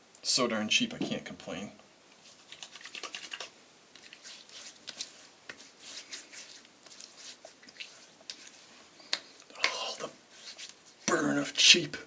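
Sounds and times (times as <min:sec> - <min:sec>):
hands rubbing skin: 0:02.2 - 0:11.2
hands patting face: 0:02.5 - 0:11.3.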